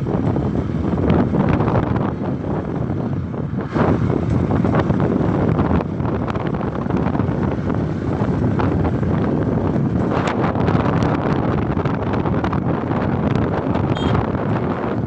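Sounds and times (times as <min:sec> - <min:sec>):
motorcycle engine: 0:00.0 - 0:15.0
road noise: 0:00.0 - 0:15.0
wind buffeting microphone: 0:00.0 - 0:15.0.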